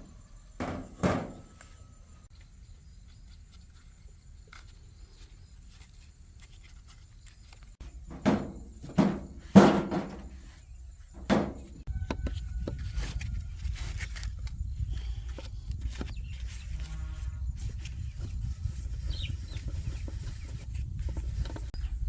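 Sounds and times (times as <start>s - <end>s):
sharp metallic knocks: 0.0s - 1.6s, 7.8s - 10.4s, 11.2s - 12.3s.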